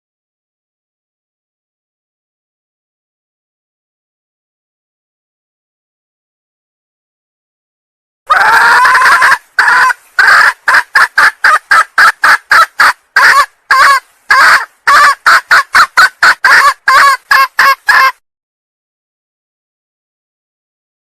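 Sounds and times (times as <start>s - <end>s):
hen calling and clucking: 8.3s - 18.2s.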